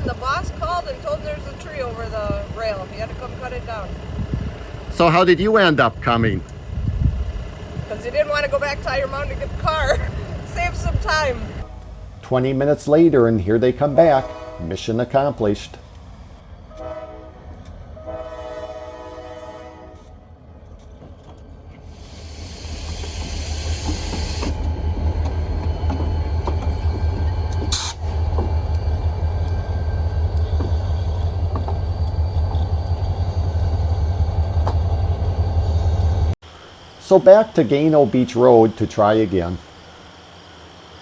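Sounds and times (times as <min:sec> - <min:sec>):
locomotive engine rumble: 0:00.0 - 0:41.0
locomotive air horn: 0:14.0 - 0:15.3, 0:16.7 - 0:20.2.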